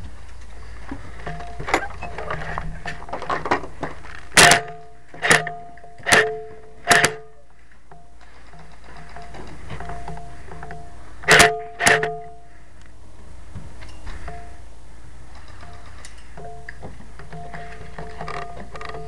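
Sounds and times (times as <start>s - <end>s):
faint clicks and rattles: 0.0s - 12.9s, 15.3s - 19.0s
airsoft rifle shots: 4.3s - 7.4s, 11.2s - 12.4s.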